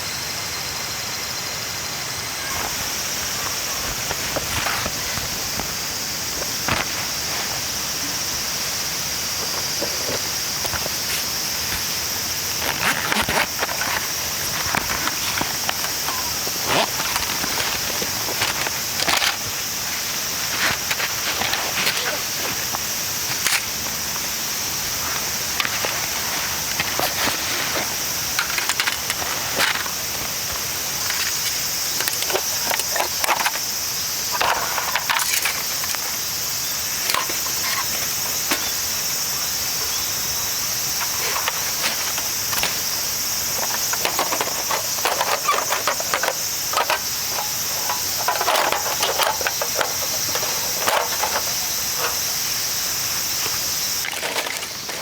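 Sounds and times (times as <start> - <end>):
high-pitched insect chorus: 0.0 - 55.0
knocks and clatters of handling: 25.6 - 33.7, 34.3 - 36.3, 36.9 - 38.8, 40.9 - 55.0.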